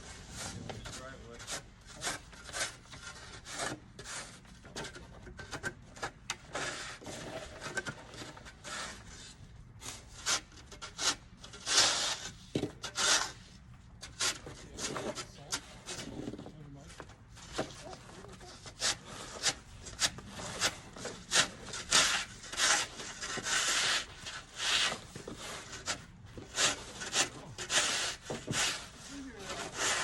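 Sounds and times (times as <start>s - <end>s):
snow shovel scraping snow: 6.6s - 12.3s, 12.9s - 13.4s, 17.5s - 30.0s.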